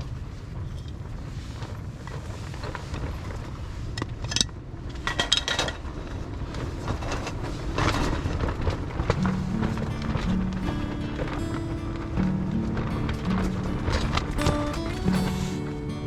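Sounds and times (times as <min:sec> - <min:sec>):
wind buffeting microphone: 0:05.7 - 0:16.0.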